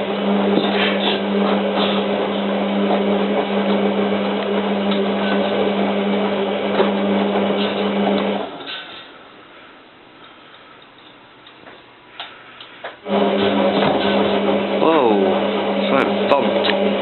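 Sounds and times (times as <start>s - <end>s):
washing machine tumbling: 0.0s - 9.0s, 13.0s - 17.0s.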